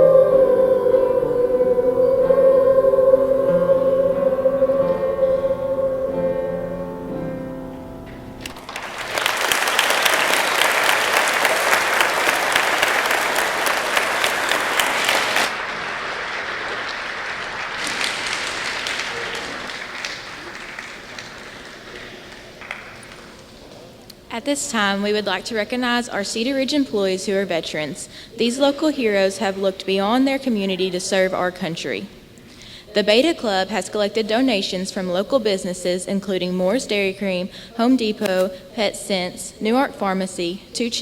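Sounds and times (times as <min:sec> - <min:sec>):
choir holding a chord: 0:00.0 - 0:08.5
audience applause: 0:08.4 - 0:23.5.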